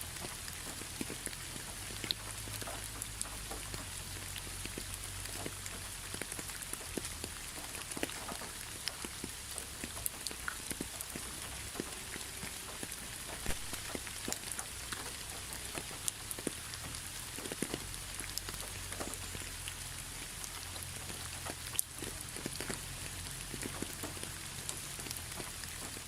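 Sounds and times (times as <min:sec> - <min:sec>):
raindrops striking close by: 0:00.0 - 0:26.0
steady rain: 0:00.0 - 0:26.0.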